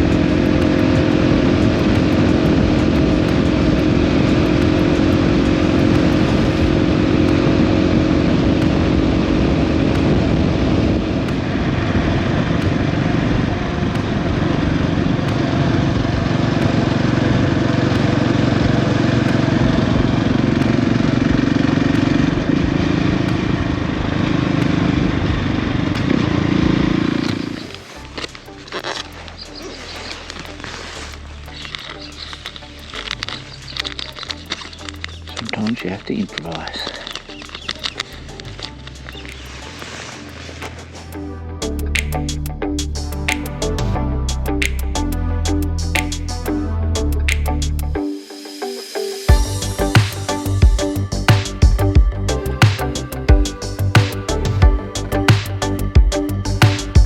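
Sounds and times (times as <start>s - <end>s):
motorcycle engine cruising: 0.0s - 35.8s
wind and road noise: 0.0s - 42.5s.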